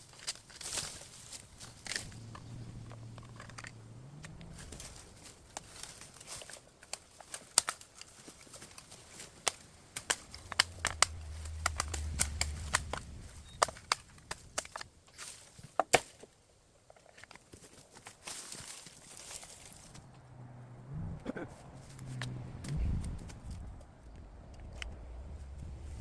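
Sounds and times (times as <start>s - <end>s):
bamboo cracking and breaking: 0.0s - 20.2s
low rumble: 9.6s - 15.1s, 20.0s - 26.0s.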